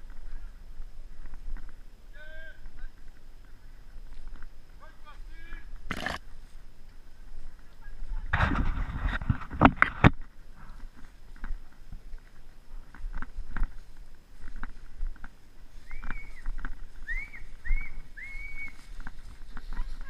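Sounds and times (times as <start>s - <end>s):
rustling: 2.6s - 20.0s
high whistle-like calls: 15.8s - 18.9s.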